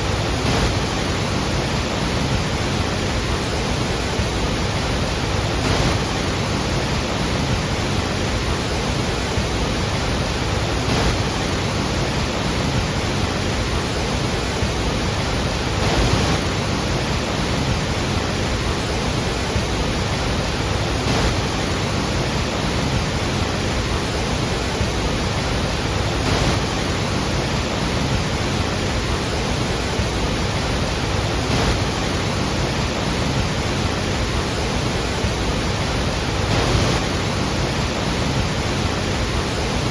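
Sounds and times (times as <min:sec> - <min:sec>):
large waterfall rushing: 0:00.0 - 0:39.9.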